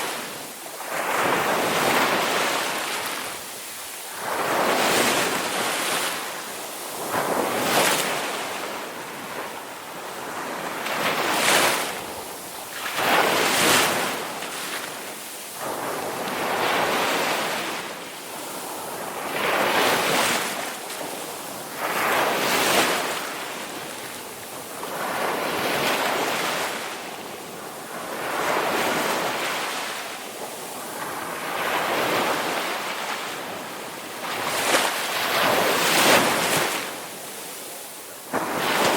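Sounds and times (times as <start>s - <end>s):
waves breaking: 10.2s - 38.9s.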